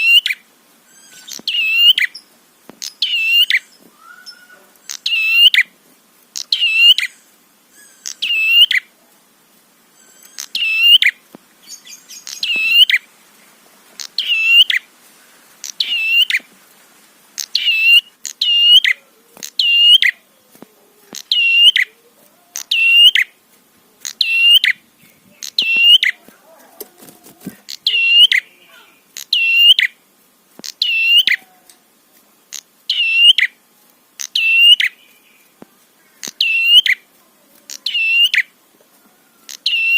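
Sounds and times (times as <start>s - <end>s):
bird chirping sharply: 0.0s - 5.7s, 6.4s - 8.9s, 9.9s - 13.0s, 17.4s - 20.2s, 21.2s - 21.9s, 22.6s - 23.3s, 24.1s - 24.8s, 25.4s - 26.2s, 27.7s - 28.6s, 29.2s - 30.0s, 30.6s - 31.4s, 32.6s - 33.6s, 34.2s - 35.1s, 36.2s - 37.0s, 37.8s - 38.5s.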